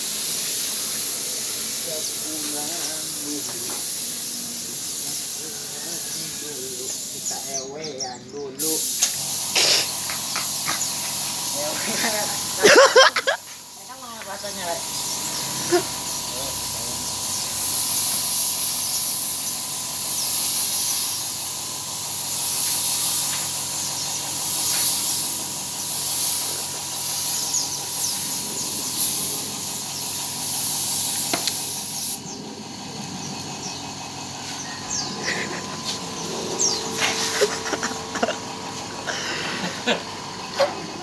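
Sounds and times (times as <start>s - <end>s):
spray gun hissing: 0.0s - 7.8s, 8.6s - 40.6s
faint steady high tone: 34.6s - 34.9s.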